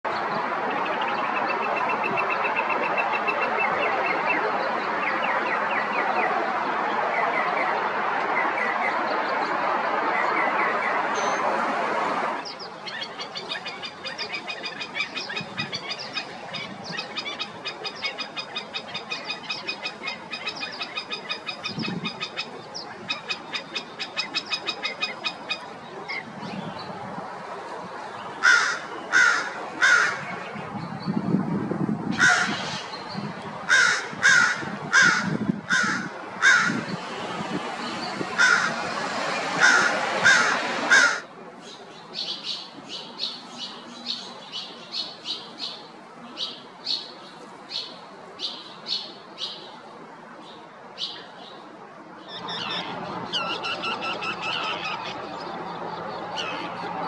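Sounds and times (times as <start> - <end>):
steady rushing noise: 14.8 - 41.6
crow cawing: 28.4 - 30.2, 32.2 - 32.6, 33.7 - 36.8, 38.4 - 38.8, 39.6 - 41.3
sharp repeated stilt calls: 52.3 - 55.4.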